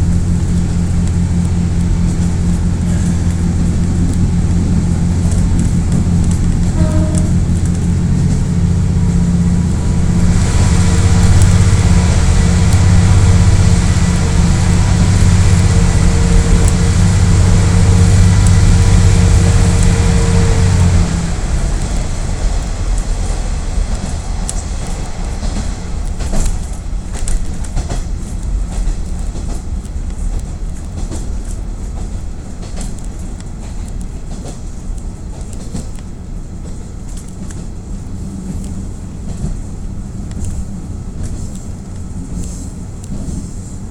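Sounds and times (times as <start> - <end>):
diesel railcar engine running: 0.0 - 43.9
wheels rumbling on rails: 0.0 - 43.9
sharp clacks of wheels: 10.8 - 43.9.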